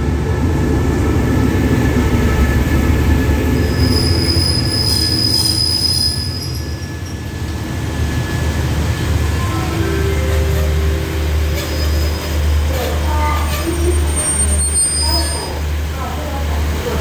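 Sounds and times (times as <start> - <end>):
train carriages rolling past: 0.5 - 17.0
high brake squeal: 3.6 - 7.4, 9.4 - 12.6, 13.3 - 15.7.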